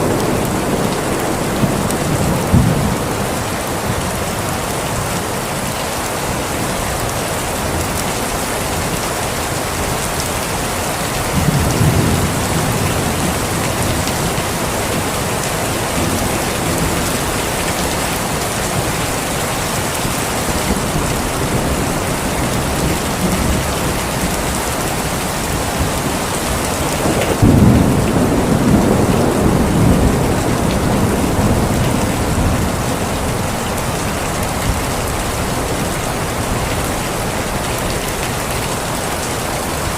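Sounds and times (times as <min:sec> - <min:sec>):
heavy rain: 0:00.0 - 0:39.9
thunder rolling: 0:11.3 - 0:18.9, 0:20.5 - 0:33.8.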